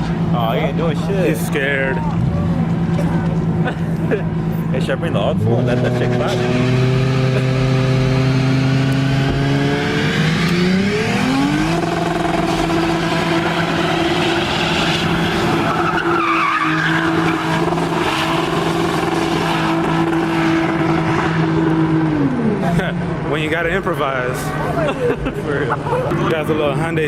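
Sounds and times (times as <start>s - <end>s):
car engine revving: 0.0s - 27.0s
tyres squealing: 12.8s - 18.6s.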